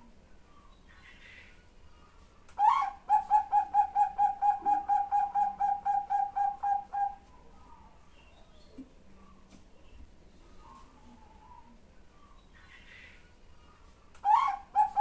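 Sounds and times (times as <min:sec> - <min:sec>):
dove cooing: 0:02.6 - 0:07.9, 0:14.2 - 0:15.0.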